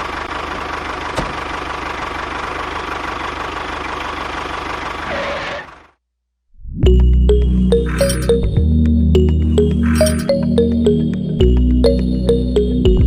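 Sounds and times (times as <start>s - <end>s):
small engine chugging: 0.0s - 6.0s
music: 6.8s - 13.0s.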